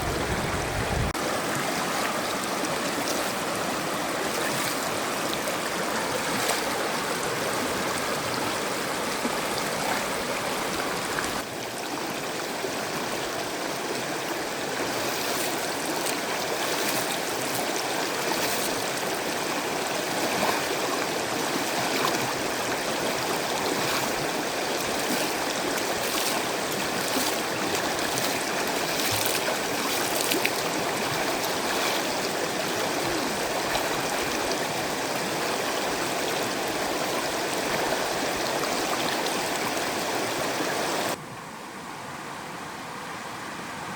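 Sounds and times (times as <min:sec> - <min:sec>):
stream water flowing: 0:00.0 - 0:43.9.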